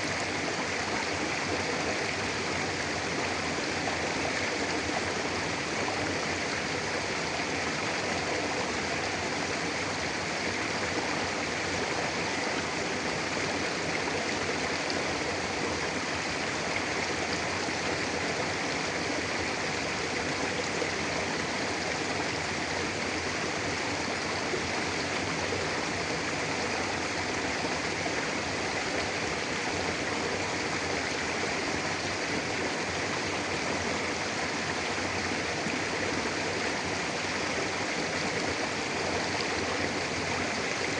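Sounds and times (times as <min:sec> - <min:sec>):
river flowing over rocks: 0:00.0 - 0:40.9.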